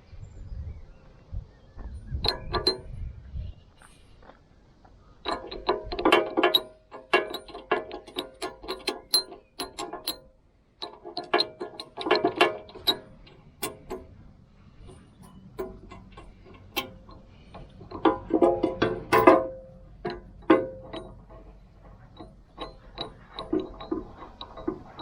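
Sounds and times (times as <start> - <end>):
hand ratchet clicking: 5.3 - 14.2, 14.8 - 25.0.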